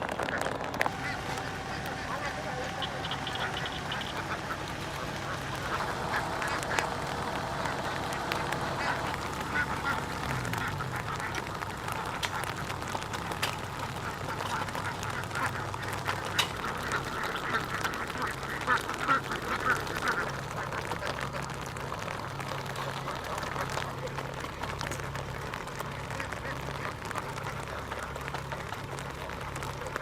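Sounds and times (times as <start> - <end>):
low steady hum: 0.0 - 30.0
ducks quacking: 0.1 - 30.0.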